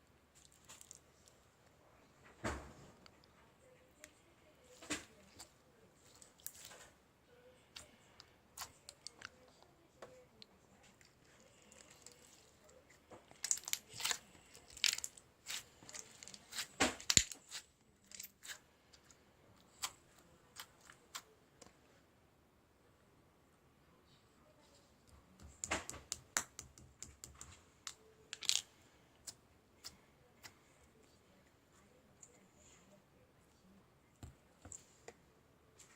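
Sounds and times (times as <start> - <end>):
small clicks and crinkling: 0.3 - 1.4, 7.8 - 21.8, 25.0 - 30.7
sharp clicks and taps: 25.0 - 28.0.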